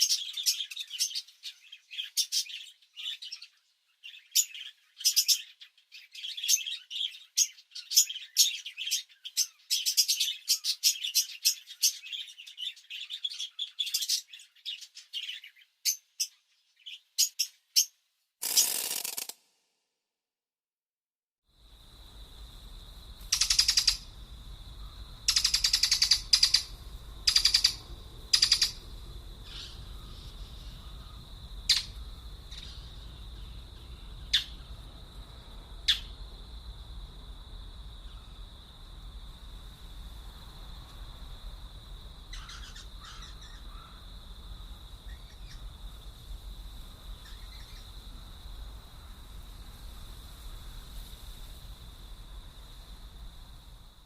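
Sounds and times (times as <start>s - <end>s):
short sharp bird chirps: 23.3s - 24.0s, 27.3s - 28.8s
harsh raspy bird calls: 23.3s - 24.1s, 24.8s - 28.8s, 29.4s - 33.1s, 42.3s - 44.1s.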